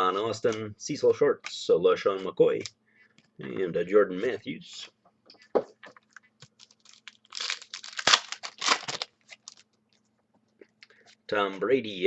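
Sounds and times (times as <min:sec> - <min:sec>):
wrapper tearing and crinkling: 0:06.5 - 0:09.7.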